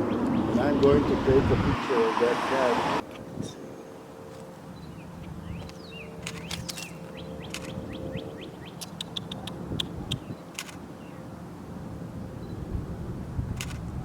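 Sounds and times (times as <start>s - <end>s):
small birds chirping: 0.0s - 0.8s, 4.8s - 11.2s
camera shutter clicks: 6.2s - 6.9s, 7.5s - 7.8s, 10.5s - 10.8s, 13.6s - 13.8s.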